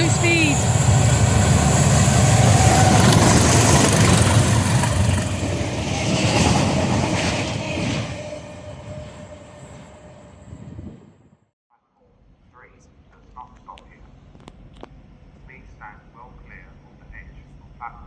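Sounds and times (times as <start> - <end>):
train passing at high speed: 0.0 - 11.4.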